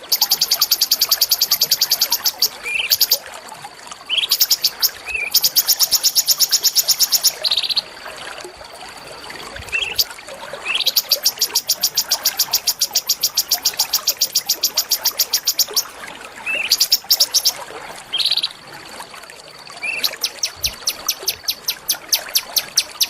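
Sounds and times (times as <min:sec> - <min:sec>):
songbird singing rattling trills: 0:00.0 - 0:03.2, 0:04.1 - 0:07.9, 0:10.7 - 0:18.6, 0:19.8 - 0:23.0.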